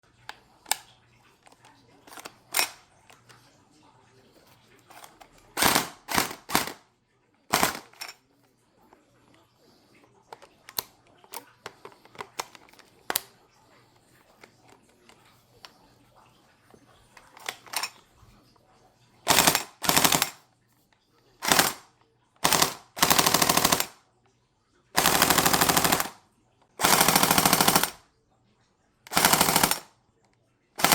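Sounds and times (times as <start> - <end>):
clicks and rattles of reloading: 0.6 - 3.2, 4.8 - 6.8, 7.5 - 8.2, 17.2 - 18.0, 19.3 - 20.4, 21.4 - 21.8, 22.4 - 24.0, 25.0 - 26.2, 26.8 - 28.0, 29.1 - 29.9
full-auto toy gun bursts: 2.1 - 2.8, 4.9 - 6.8, 7.5 - 8.1, 19.3 - 20.4, 21.4 - 24.0, 25.0 - 26.2, 26.8 - 28.0, 29.1 - 29.9.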